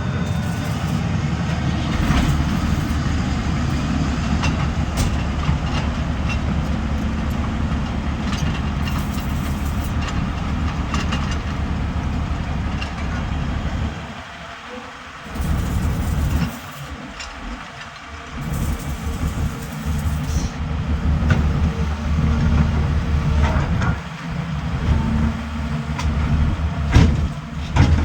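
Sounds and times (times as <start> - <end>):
excavator diesel engine rumbling: 0.0 - 28.0.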